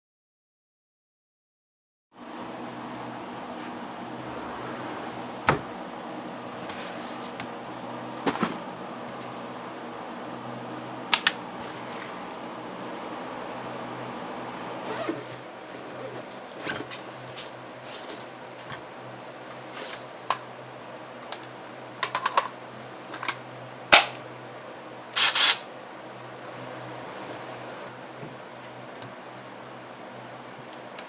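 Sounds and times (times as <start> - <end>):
low steady hum: 2.6 - 14.8.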